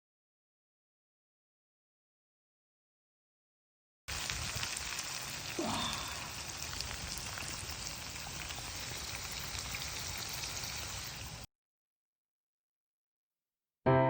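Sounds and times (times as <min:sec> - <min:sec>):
rain pattering: 0:04.1 - 0:11.5.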